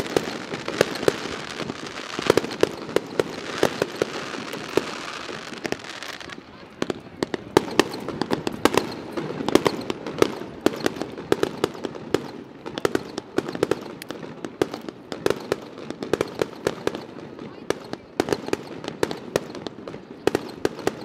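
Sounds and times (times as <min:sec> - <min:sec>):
firework shells bursting: 0:00.0 - 0:21.0.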